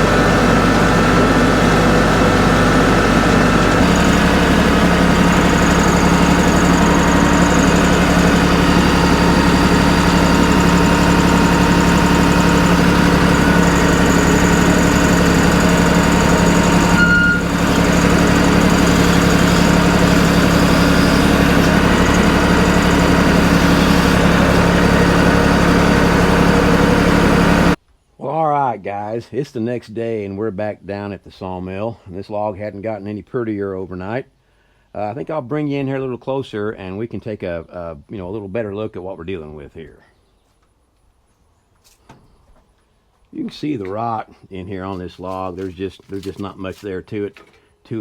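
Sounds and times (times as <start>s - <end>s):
sawmill engine running: 0.0s - 27.8s, 44.9s - 46.9s.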